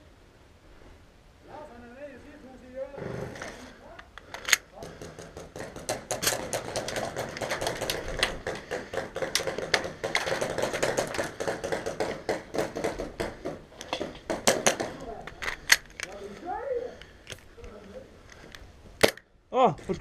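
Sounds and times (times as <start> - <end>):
pellets striking wooden planks: 4.8 - 15.6.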